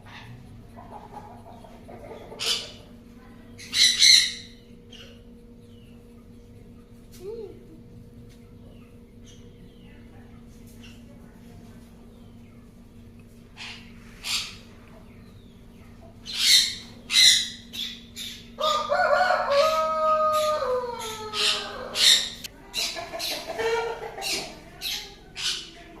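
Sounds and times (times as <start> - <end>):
rooster crowing: 18.6 - 22.5.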